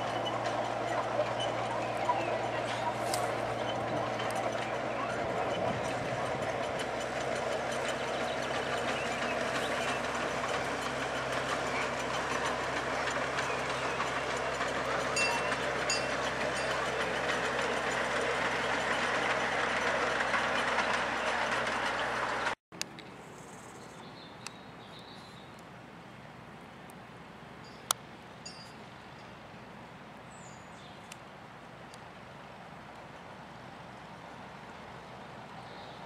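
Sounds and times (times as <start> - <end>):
miniature train running: 0.0 - 22.6.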